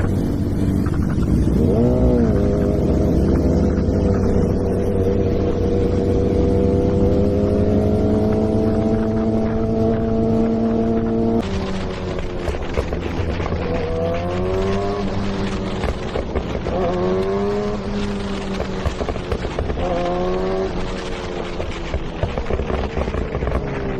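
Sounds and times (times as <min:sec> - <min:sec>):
motorcycle engine accelerating: 0:00.0 - 0:23.9.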